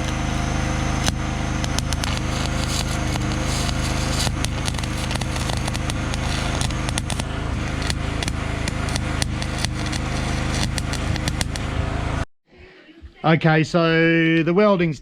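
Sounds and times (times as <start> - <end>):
low electrical hum: 0.0 - 12.2
welder crackling: 0.0 - 12.3.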